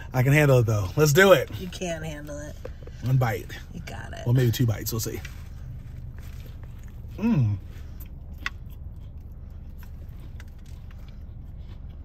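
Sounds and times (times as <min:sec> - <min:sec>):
low hum in car cabin: 0:00.0 - 0:12.0
chewing with mouth clicks: 0:05.2 - 0:12.0
man's appreciative mmm: 0:07.1 - 0:07.7.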